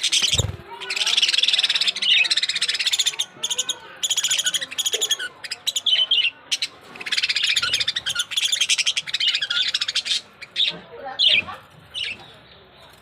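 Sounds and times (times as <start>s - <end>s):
budgerigars chirping: 0.0s - 12.4s.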